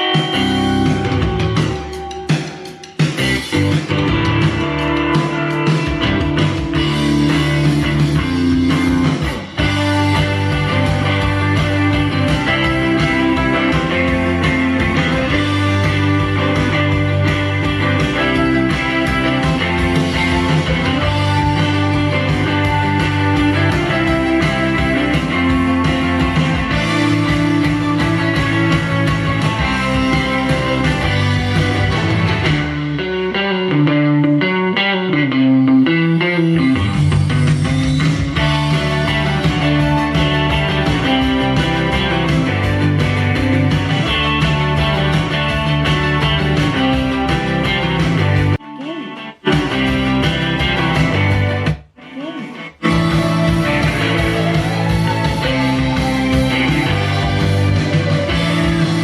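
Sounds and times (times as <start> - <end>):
guitar rock music: 0.0 - 59.0.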